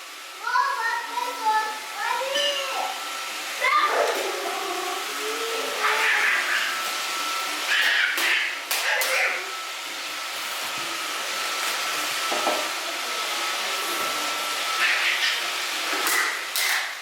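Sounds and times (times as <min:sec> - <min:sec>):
vacuum suction motor hiss: 0:00.0 - 0:17.0.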